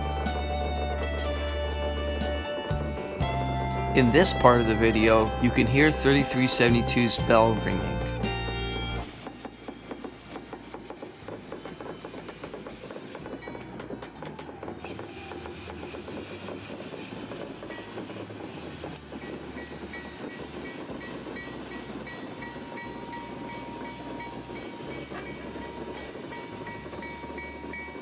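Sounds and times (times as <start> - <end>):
locomotive bell ringing: 3.7 - 9.1, 19.9 - 28.0.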